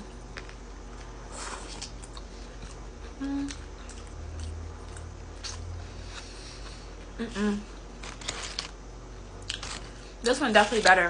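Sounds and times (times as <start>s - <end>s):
chewing food: 0.3s - 6.8s
person humming: 3.2s - 3.7s
crunching: 8.0s - 8.8s, 9.4s - 10.9s.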